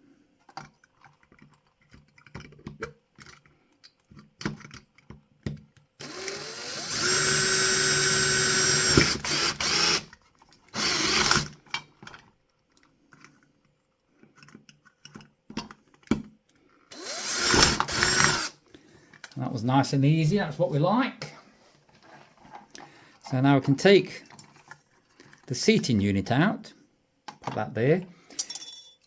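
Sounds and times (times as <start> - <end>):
power drill whining: 6.0 - 10.1, 10.7 - 11.6, 16.9 - 18.6.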